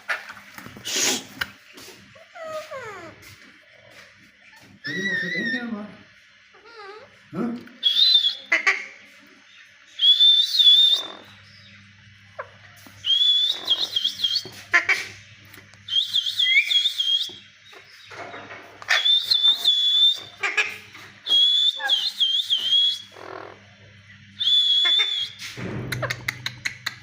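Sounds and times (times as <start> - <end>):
parakeet squawks: 7.9 - 9.0, 13.2 - 15.2, 18.8 - 21.0
parakeet warbling calls: 10.6 - 11.6, 13.2 - 15.2, 18.9 - 21.0, 21.7 - 23.6.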